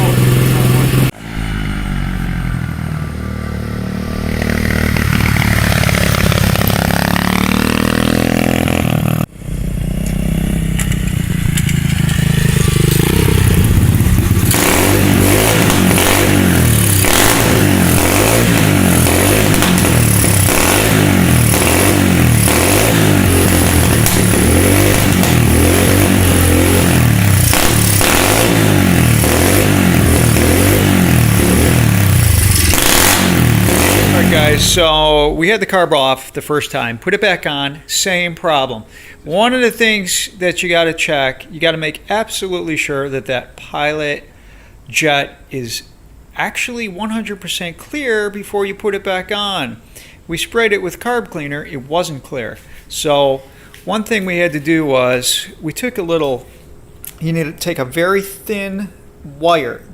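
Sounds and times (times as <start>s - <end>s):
motorcycle engine revving: 0.0s - 35.4s.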